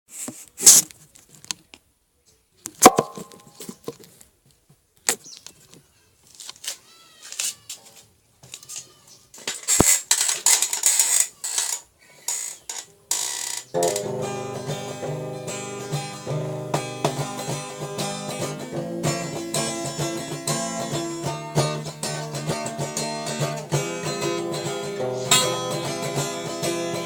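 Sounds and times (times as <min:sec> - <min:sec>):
rustling: 0:00.1 - 0:01.8, 0:02.6 - 0:14.0
knocks and clicks: 0:02.8 - 0:03.6.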